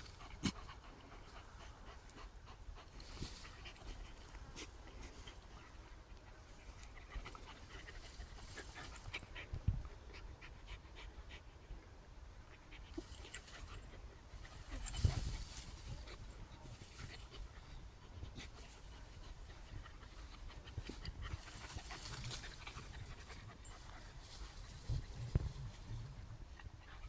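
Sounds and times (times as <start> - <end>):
dog panting: 0.0 - 11.7, 12.5 - 27.0.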